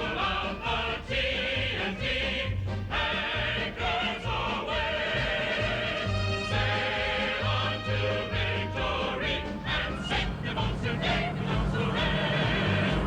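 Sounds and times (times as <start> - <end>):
mixed choir singing: 0.0 - 13.0
instrumental accompaniment: 6.0 - 13.0.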